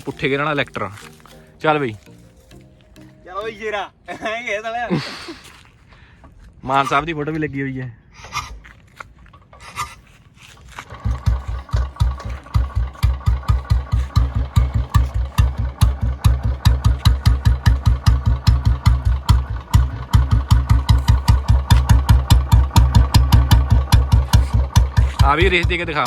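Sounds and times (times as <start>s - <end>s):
motorcycle engine idling thump: 10.9s - 26.0s.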